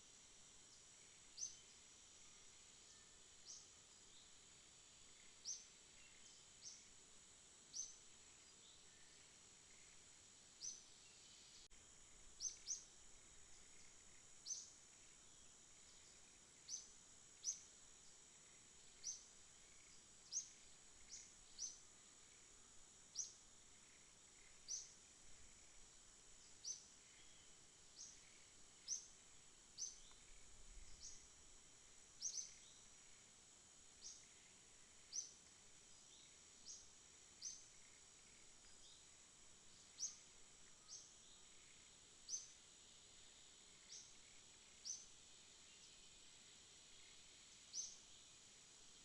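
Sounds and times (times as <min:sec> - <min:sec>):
high-pitched insect drone: 0:07.7 - 0:39.1.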